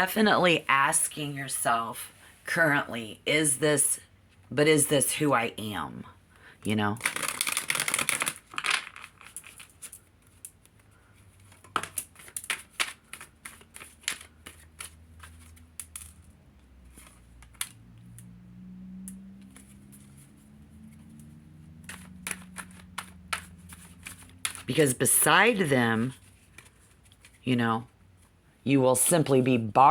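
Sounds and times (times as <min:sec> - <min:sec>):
cards being shuffled: 0:07.0 - 0:17.8, 0:19.2 - 0:25.0, 0:26.0 - 0:28.4.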